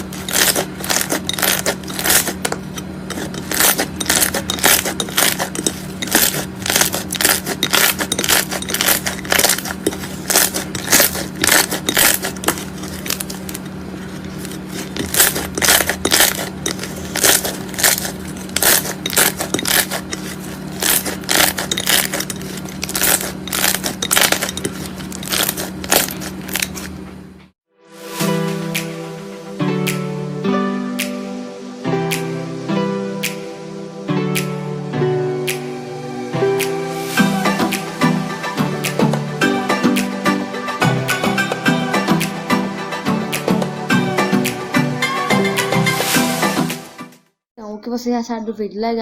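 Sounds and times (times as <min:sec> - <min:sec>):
steady low hum: 0:00.0 - 0:27.5.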